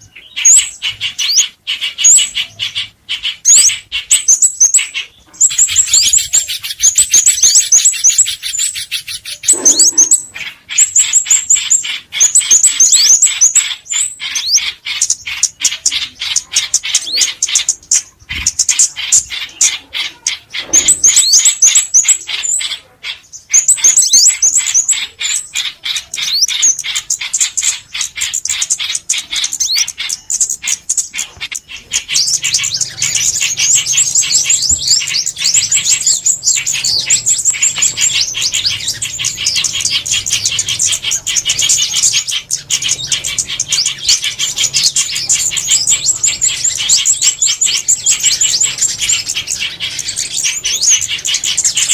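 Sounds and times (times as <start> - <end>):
songbirds twittering: 0.0 - 51.9.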